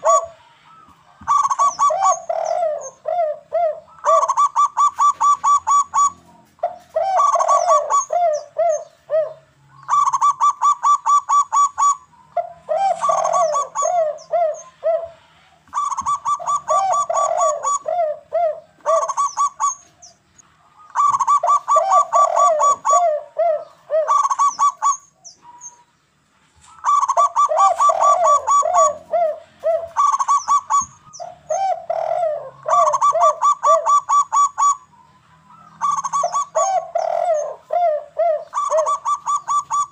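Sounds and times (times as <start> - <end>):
falling cooing notes: 0.0 - 19.9, 20.8 - 25.8, 26.8 - 39.9
ringing bird notes: 0.0 - 26.1
doves calling: 0.0 - 39.9.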